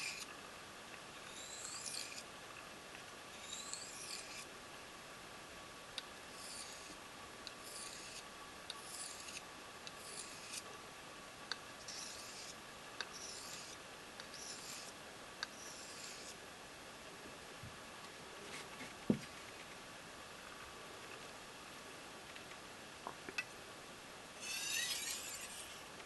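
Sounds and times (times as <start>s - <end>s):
knife scraping on whetstone: 0.0s - 0.3s, 1.3s - 2.3s, 3.4s - 4.5s, 6.3s - 7.0s, 7.6s - 8.2s, 8.8s - 10.6s, 11.8s - 16.4s, 24.4s - 25.8s.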